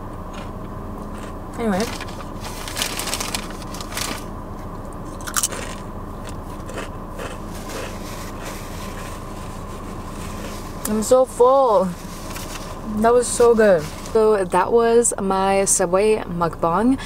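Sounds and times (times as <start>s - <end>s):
person chewing crunchy food: 0.1s - 1.4s, 5.1s - 10.8s.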